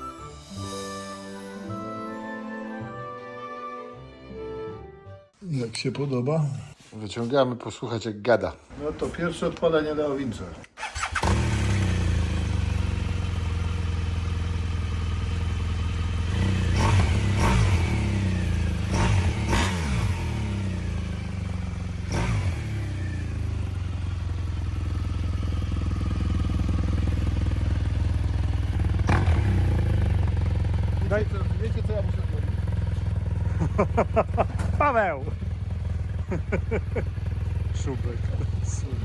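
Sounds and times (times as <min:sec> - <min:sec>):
motorcycle engine idling: 0:10.8 - 0:39.0.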